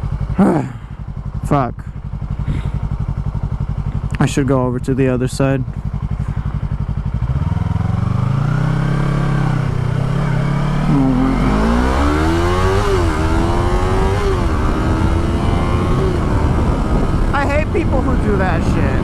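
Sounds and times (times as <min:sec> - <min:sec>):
motorcycle engine accelerating: 0:00.0 - 0:19.0
wind rush: 0:11.4 - 0:19.0.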